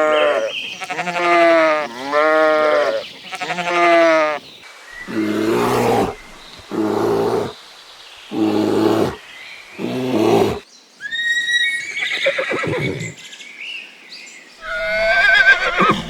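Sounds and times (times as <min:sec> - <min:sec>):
high quavering animal calls: 0:00.0 - 0:04.4, 0:14.6 - 0:16.0.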